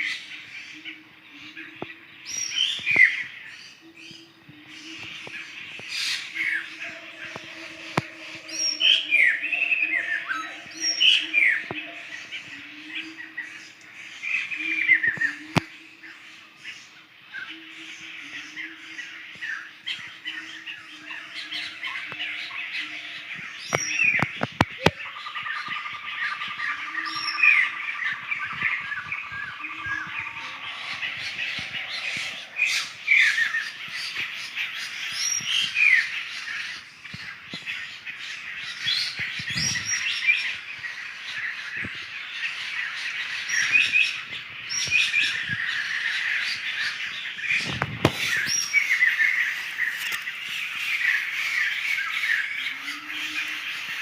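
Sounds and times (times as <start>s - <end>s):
birds squawking and chattering: 0.0s - 54.0s.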